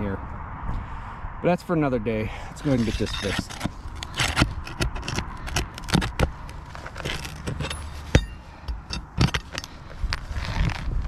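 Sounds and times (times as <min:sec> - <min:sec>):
knocks and scrapes on shingles: 0:02.6 - 0:11.0
sharp metallic clink: 0:07.5 - 0:09.7.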